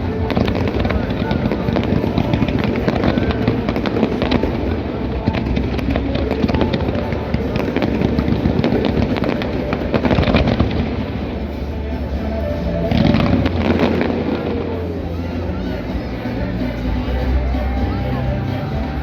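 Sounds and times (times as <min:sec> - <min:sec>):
fireworks bangs and crackles: 0:00.0 - 0:16.2
music playing: 0:00.0 - 0:19.0.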